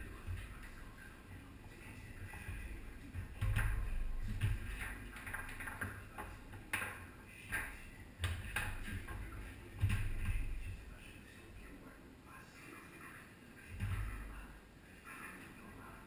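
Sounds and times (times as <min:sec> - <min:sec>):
foosball ball clacking: 0:02.3 - 0:10.6.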